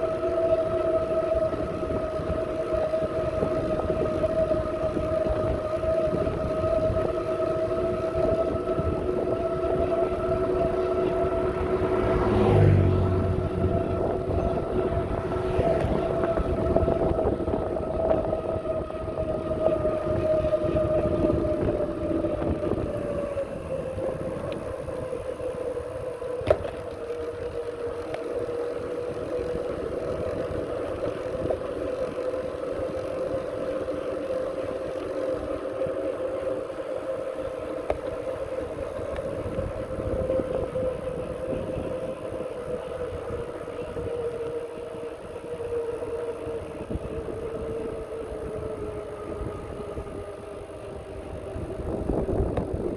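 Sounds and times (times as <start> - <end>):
wind rumbling on microphone: 0.0 - 52.9.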